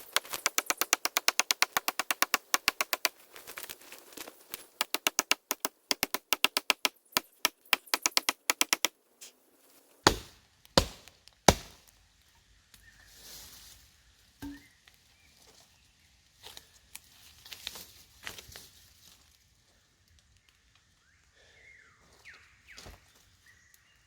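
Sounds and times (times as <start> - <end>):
rapid sharp tapping: 0.0 - 3.2, 4.6 - 8.9, 10.1 - 11.8
heavy thumps: 10.1 - 11.9, 14.4 - 14.6.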